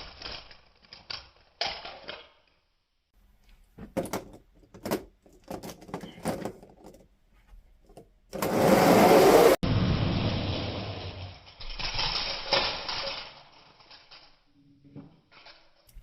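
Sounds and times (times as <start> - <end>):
toy cars clattering on plastic track: 11.1 - 16.0.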